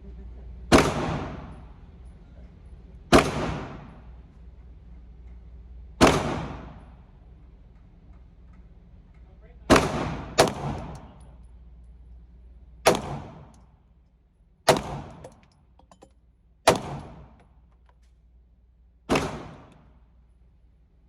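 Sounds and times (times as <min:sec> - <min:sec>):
pistol shots with echo: 0:00.7 - 0:01.7, 0:03.1 - 0:04.1, 0:06.0 - 0:06.9, 0:09.7 - 0:11.2, 0:12.9 - 0:13.5, 0:14.7 - 0:15.4, 0:16.7 - 0:17.4, 0:19.1 - 0:19.8.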